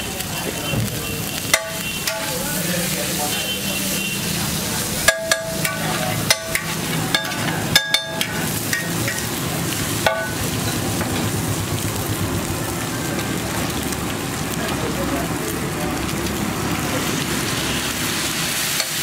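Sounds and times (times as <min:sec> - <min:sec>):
egg sizzling on griddle: 0:00.0 - 0:19.0
spatula clanking on griddle: 0:01.3 - 0:02.5, 0:05.0 - 0:11.4, 0:18.8 - 0:19.0
metal spatula scraping: 0:05.1 - 0:09.3.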